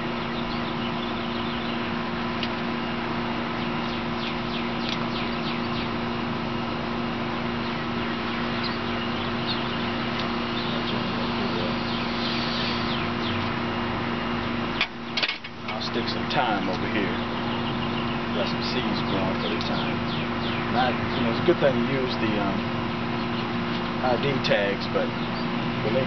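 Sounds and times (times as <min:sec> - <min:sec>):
outdoor background hiss: 0:00.0 - 0:26.0
small birds chirping: 0:00.0 - 0:26.0
steady low hum: 0:00.0 - 0:26.0.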